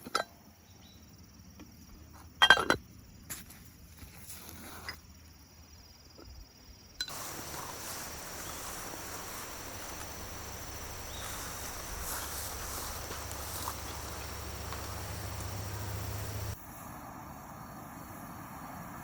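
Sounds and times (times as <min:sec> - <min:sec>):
high insect trill: 0:04.3 - 0:18.8
low hum: 0:07.1 - 0:16.6.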